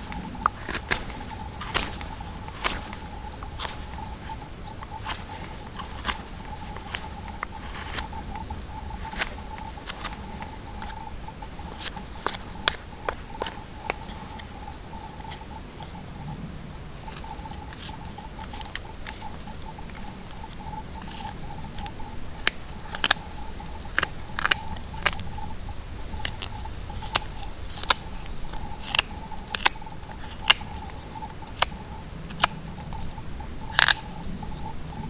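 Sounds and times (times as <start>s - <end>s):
sharp clicks and taps: 0.0s - 14.6s.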